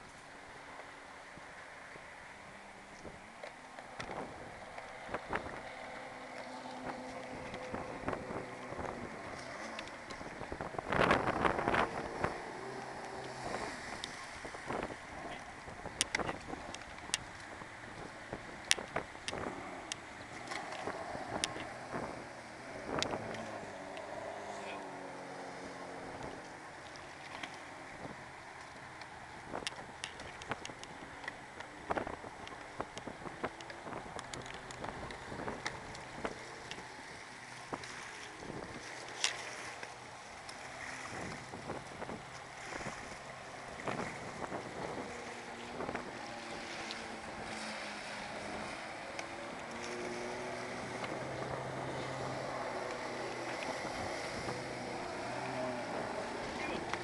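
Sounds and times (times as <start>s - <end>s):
faint low engine hum: 0.0s - 57.0s
water splashing against jet ski: 0.0s - 57.0s
wind noise on microphone: 4.0s - 5.7s, 6.8s - 24.2s, 27.9s - 28.3s, 31.8s - 36.7s, 37.6s - 39.7s, 40.8s - 57.0s.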